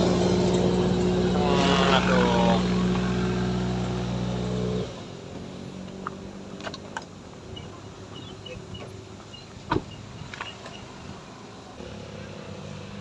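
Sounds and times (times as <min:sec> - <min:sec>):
car engine straining: 0:00.0 - 0:13.0.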